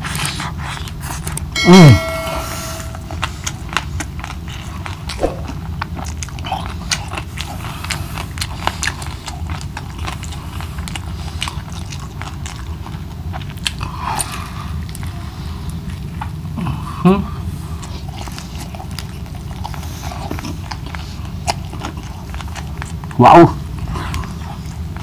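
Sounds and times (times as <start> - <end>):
chewing crispy fried fish: 5.8 - 25.0.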